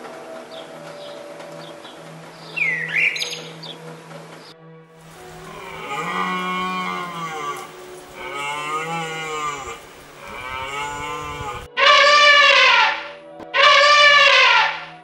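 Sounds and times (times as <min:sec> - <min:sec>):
elephant trumpeting: 0:05.0 - 0:15.0
low grazing animal calls: 0:05.1 - 0:13.0.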